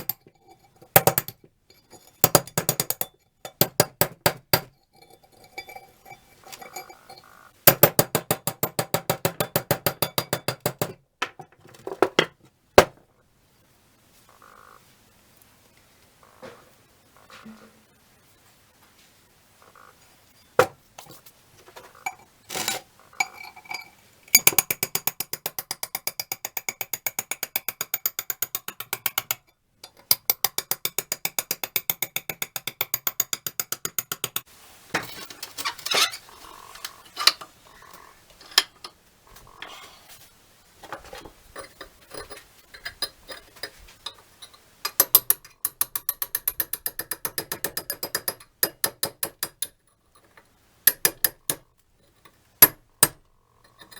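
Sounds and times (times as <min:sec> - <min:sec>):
metal parts clanking: 0:00.0 - 0:10.4, 0:35.0 - 0:38.9
rapid metallic wrench clicking: 0:01.0 - 0:01.4, 0:02.2 - 0:04.7, 0:07.7 - 0:11.0, 0:24.4 - 0:29.4, 0:30.0 - 0:34.5, 0:44.9 - 0:49.8.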